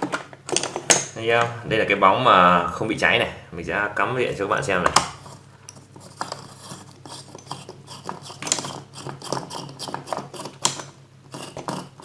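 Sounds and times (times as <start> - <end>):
bulb clicking and scraping: 4.8 - 12.0.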